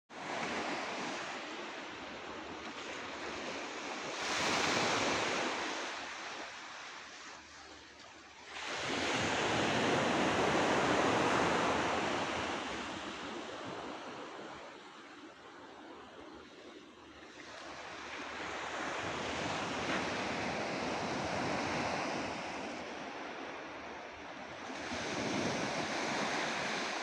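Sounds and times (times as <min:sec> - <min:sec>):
waves breaking on shore: 0:00.2 - 0:27.0.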